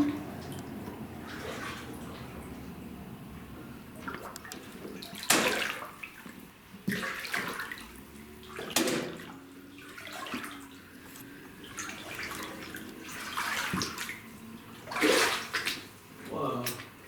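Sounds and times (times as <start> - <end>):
water sloshing: 0.0 - 2.9, 3.9 - 17.0
splashing footsteps in water: 1.2 - 2.3, 4.0 - 10.8, 11.6 - 14.2, 14.8 - 16.0.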